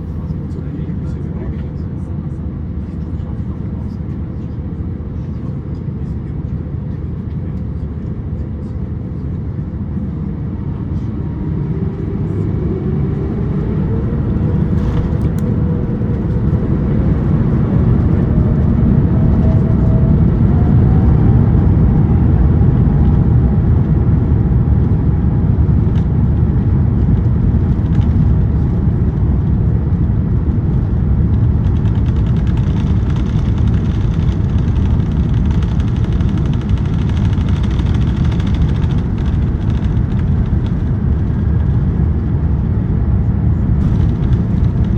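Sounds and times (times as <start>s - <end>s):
jet engines rumbling in cabin: 0.0s - 44.9s
rising engine whine: 10.7s - 44.9s.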